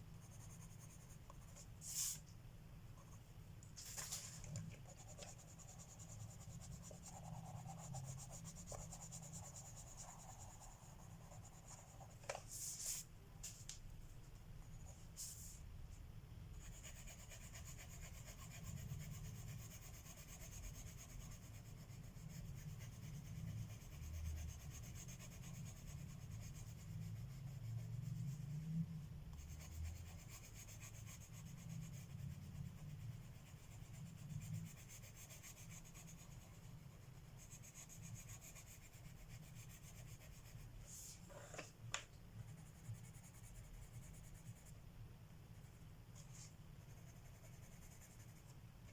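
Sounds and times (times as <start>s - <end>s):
pencil shading on paper: 0.2s - 2.2s, 4.8s - 13.0s, 16.6s - 28.6s, 29.4s - 41.1s, 45.6s - 48.9s.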